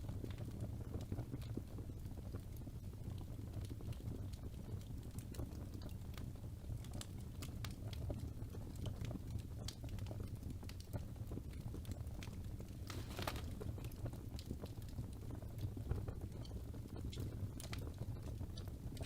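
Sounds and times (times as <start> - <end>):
logs crackling and popping: 0.2 - 19.0
fire flames rumbling: 9.4 - 19.0.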